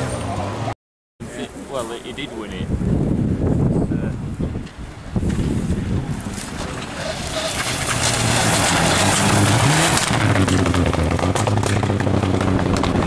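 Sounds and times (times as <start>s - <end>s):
tyre and stone noise: 4.7s - 13.0s
rally car engine at high revs: 7.1s - 13.0s.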